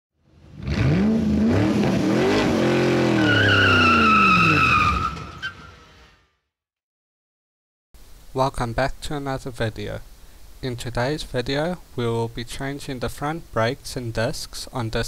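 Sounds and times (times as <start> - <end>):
car engine revving: 0.3 - 5.0
tyre squeal: 3.0 - 6.0.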